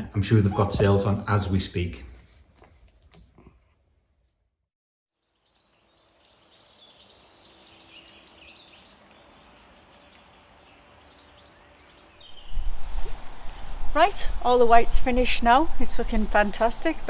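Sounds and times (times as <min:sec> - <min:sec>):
birds chirping: 0:05.4 - 0:17.0.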